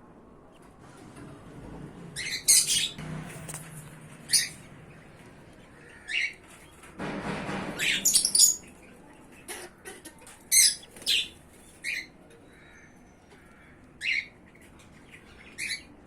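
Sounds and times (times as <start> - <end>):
birds rustling: 0.8 - 12.7
parrots squawking and chirping: 2.2 - 3.0, 4.3 - 4.6, 7.8 - 8.7, 9.3 - 12.8.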